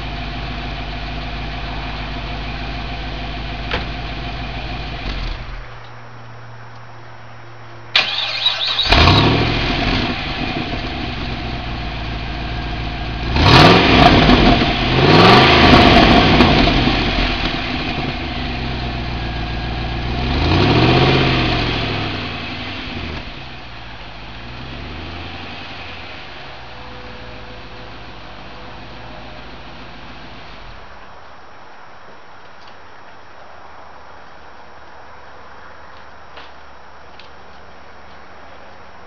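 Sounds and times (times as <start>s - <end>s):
car engine revving: 0.0s - 5.7s, 8.0s - 30.9s.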